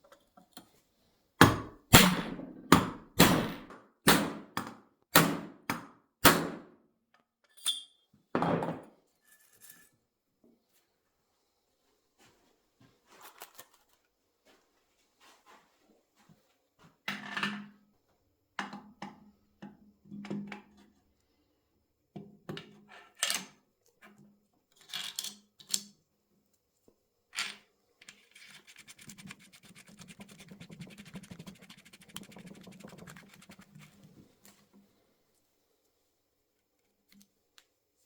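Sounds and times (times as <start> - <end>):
fast even ticking: 28.7 - 34.0.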